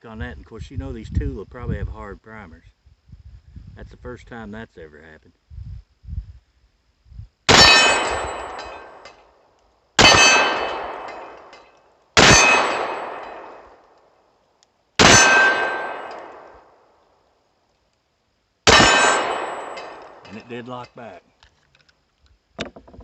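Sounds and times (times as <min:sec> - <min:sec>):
pistol shots: 0:07.5 - 0:09.1, 0:10.0 - 0:11.6, 0:12.2 - 0:13.8, 0:15.0 - 0:16.8, 0:18.7 - 0:20.6.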